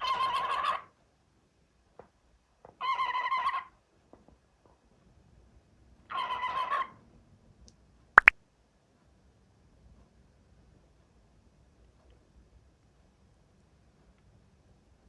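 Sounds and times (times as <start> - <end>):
cockatiel calling: 0.0 - 0.8.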